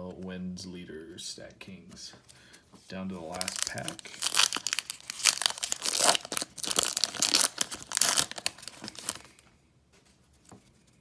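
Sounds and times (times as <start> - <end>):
wrapper tearing and crinkling: 3.2 - 9.4.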